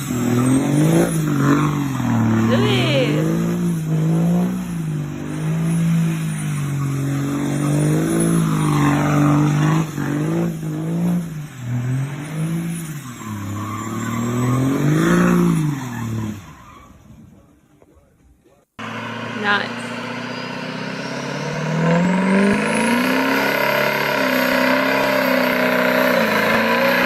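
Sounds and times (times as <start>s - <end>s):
truck engine revving: 0.0s - 16.6s, 18.8s - 27.0s.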